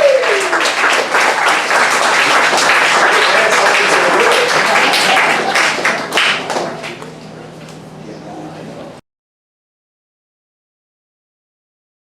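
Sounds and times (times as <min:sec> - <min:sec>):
audience applauding: 0:00.0 - 0:07.1
voices: 0:02.2 - 0:09.0.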